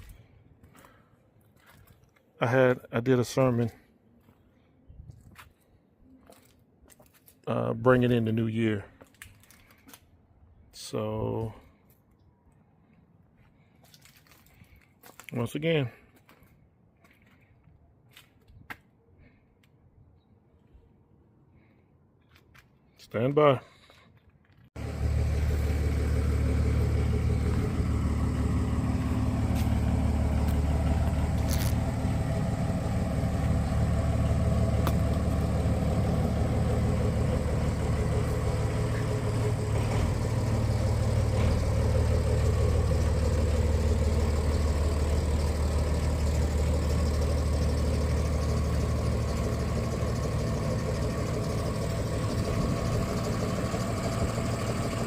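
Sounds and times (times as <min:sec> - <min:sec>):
engine idling: 0:24.8 - 0:55.0.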